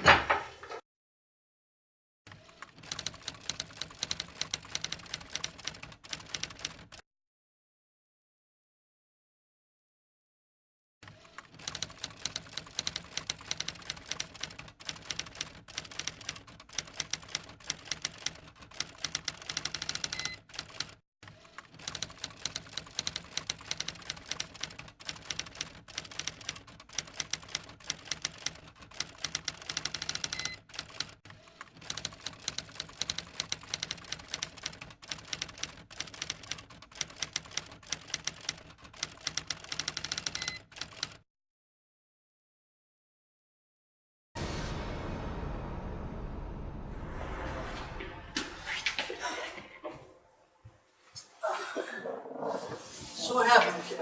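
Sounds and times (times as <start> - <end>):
typewriter keys clacking: 2.8 - 7.0, 11.6 - 21.0, 21.8 - 31.2, 31.8 - 41.2.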